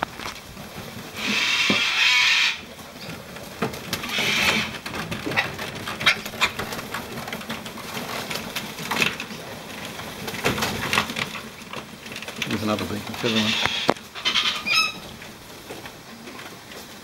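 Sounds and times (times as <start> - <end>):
beaks and feet clicking and tapping: 0.0 - 17.0
cockatoo screech: 1.2 - 2.6, 13.3 - 15.0.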